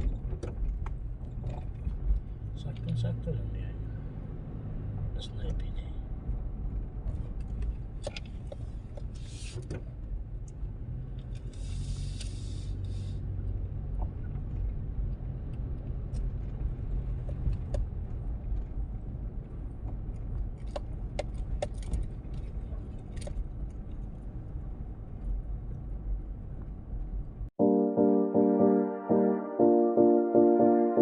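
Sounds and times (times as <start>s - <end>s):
car engine and tyre rumble: 0.0s - 27.6s
hiss: 9.2s - 9.6s, 11.5s - 13.2s
light clicks and rattles: 19.8s - 24.2s.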